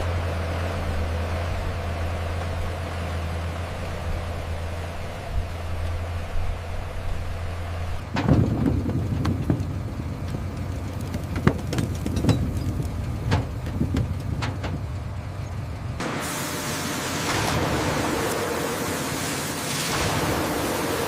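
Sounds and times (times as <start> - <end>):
low engine hum: 0.0 - 21.0
knocks and thumps: 8.1 - 15.0
steady rushing hiss: 16.0 - 21.0.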